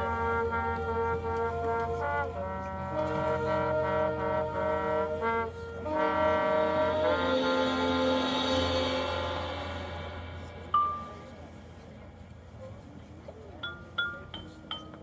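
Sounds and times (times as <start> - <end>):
brass band holding chords: 0.0 - 11.2.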